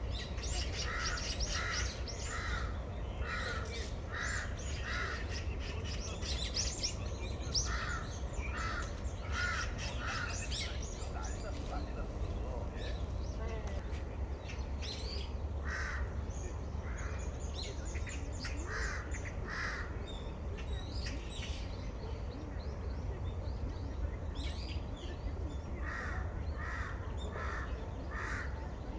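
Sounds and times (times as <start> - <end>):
small birds chirping: 0.0 - 15.4
crow cawing: 0.7 - 5.4, 7.6 - 10.7, 15.6 - 16.2, 25.8 - 28.6.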